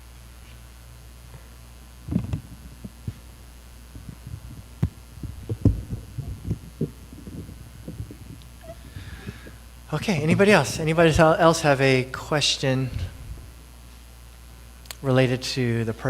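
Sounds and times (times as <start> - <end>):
low electrical hum: 0.0 - 16.0
microphone being handled: 1.3 - 10.9, 12.9 - 14.5.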